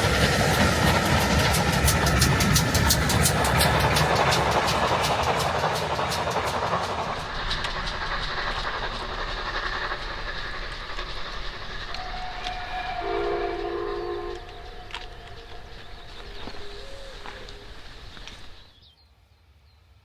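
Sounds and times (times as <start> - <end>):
wheels clicking: 0.0 - 18.7
steam train running: 0.0 - 18.9
steam whistle: 11.9 - 17.6.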